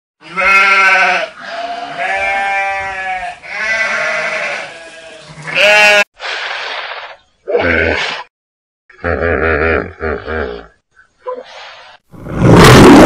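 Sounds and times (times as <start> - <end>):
sheep bleating: 0.2 - 6.1.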